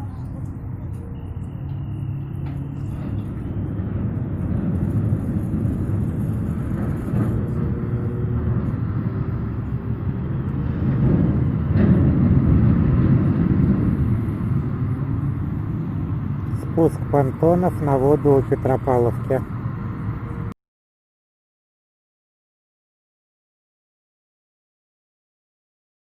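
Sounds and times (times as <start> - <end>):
low engine rumble: 0.0 - 20.6.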